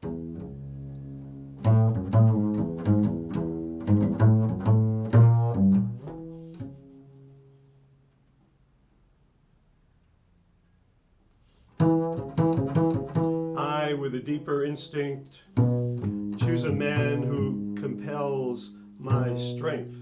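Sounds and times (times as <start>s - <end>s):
plucked low string instrument: 0.0s - 7.5s, 11.8s - 14.7s, 15.5s - 20.0s.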